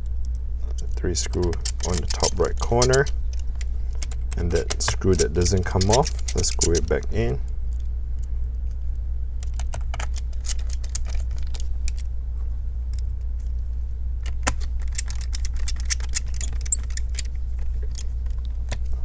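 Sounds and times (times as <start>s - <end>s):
steady low hum: 0.0s - 19.0s
screwdriver clicking on metal: 0.8s - 7.3s, 9.5s - 12.0s, 14.3s - 18.2s.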